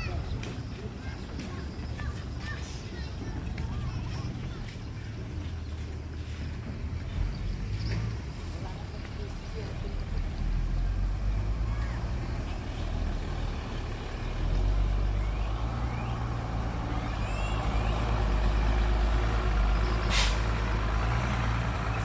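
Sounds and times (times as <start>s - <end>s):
diesel engine droning: 0.0s - 22.0s
short hiss: 20.1s - 20.6s.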